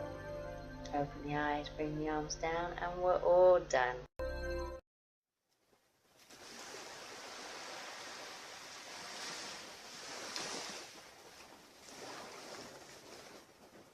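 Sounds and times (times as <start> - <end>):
ocean surf washing on beach: 6.2 - 13.9.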